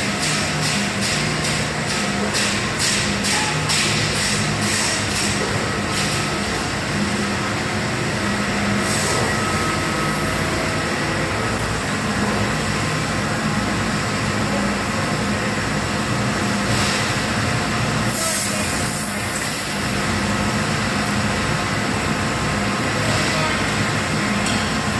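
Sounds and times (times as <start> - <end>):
laser cutting machine drone: 0.0 - 16.2.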